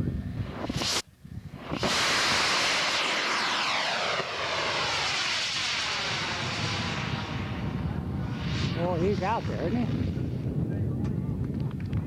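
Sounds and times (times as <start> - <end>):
model aircraft engine whining: 2.6 - 6.8.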